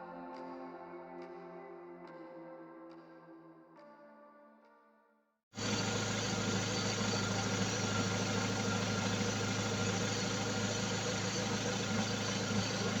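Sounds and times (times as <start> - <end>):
car engine idling: 5.6 - 13.0.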